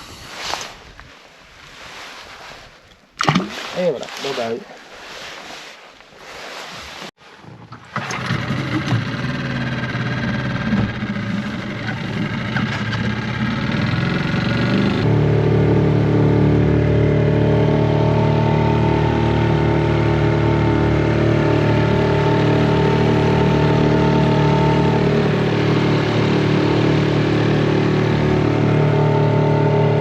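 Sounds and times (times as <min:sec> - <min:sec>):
outboard motor running: 0:07.4 - 0:30.0.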